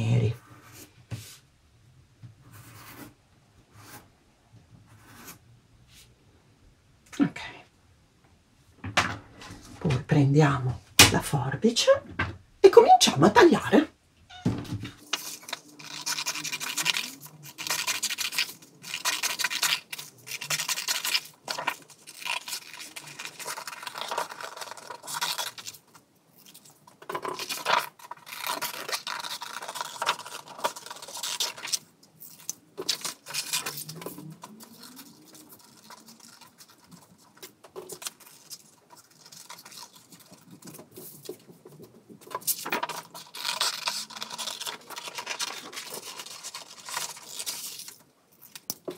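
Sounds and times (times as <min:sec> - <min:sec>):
scissors cutting paper: 0:15.0 - 0:25.8, 0:27.1 - 0:41.0, 0:42.3 - 0:48.8.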